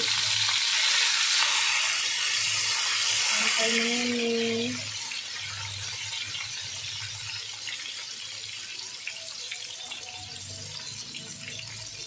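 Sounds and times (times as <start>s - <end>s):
tofu sizzling in hot oil: 0.0s - 12.0s.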